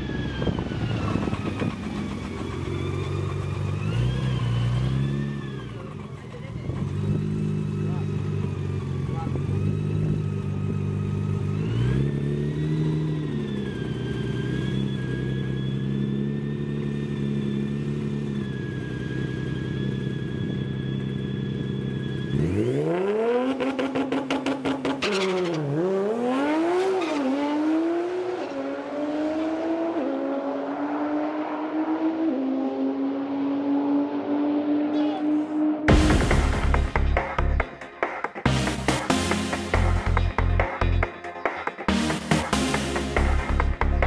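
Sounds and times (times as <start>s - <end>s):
turbo whine: 0.0s - 23.7s
engine stutter: 0.0s - 35.0s, 35.6s - 44.0s
car engine revving: 0.0s - 44.0s.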